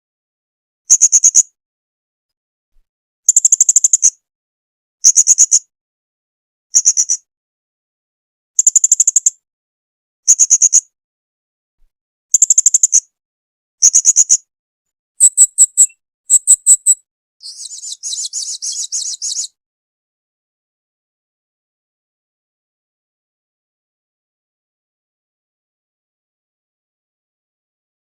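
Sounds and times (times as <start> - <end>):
parrot high-pitched chirping: 15.2 - 19.5.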